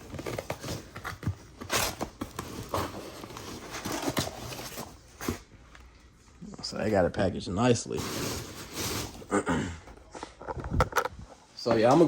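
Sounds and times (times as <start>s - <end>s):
packing rustling: 0.0s - 5.4s.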